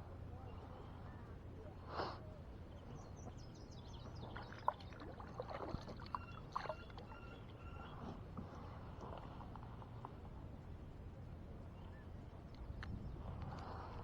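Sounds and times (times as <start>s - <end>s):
small birds chirping: 2.6s - 8.8s
water splashing: 4.1s - 7.4s.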